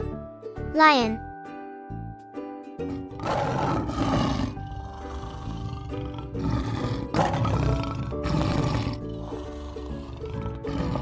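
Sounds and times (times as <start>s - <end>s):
background music: 0.0s - 11.0s
lion roaring: 3.0s - 11.0s.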